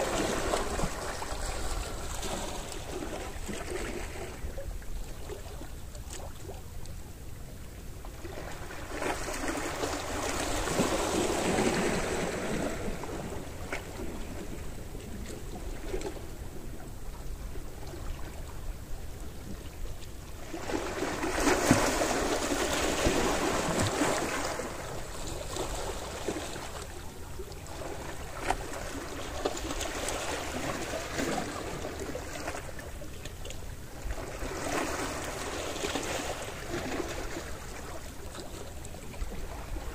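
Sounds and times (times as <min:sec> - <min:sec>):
sea waves washing on shore: 0:00.0 - 0:04.7, 0:08.1 - 0:33.2.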